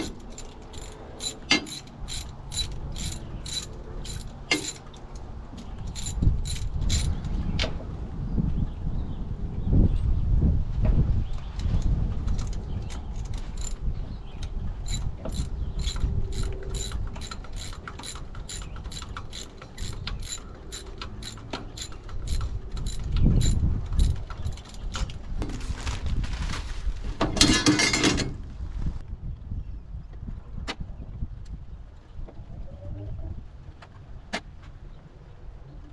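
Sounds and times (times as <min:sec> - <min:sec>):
ratchet wrench clicking: 0:00.0 - 0:04.9, 0:05.8 - 0:07.2, 0:13.5 - 0:13.8, 0:14.8 - 0:25.0.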